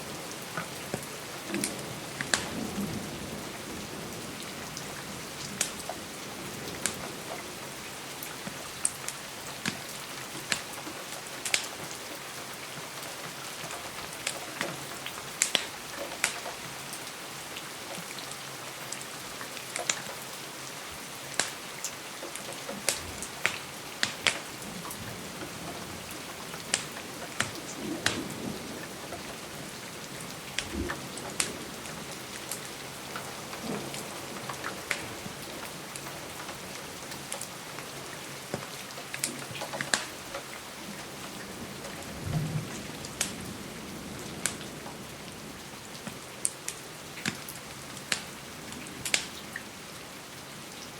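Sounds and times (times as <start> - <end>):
steady rain hissing: 0.0 - 50.9
sharp pops and ticks: 11.4 - 11.7, 15.4 - 16.5, 22.3 - 24.5, 26.6 - 28.2, 48.1 - 48.3.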